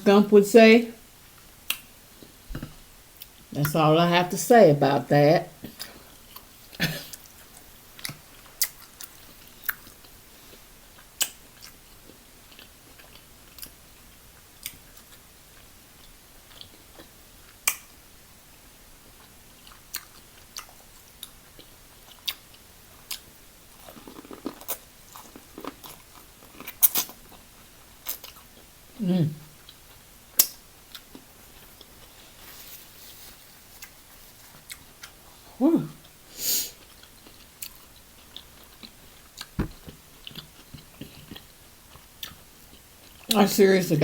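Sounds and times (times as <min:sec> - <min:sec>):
chewing and biting: 0:19.2 - 0:28.7, 0:33.8 - 0:35.4, 0:36.8 - 0:43.3.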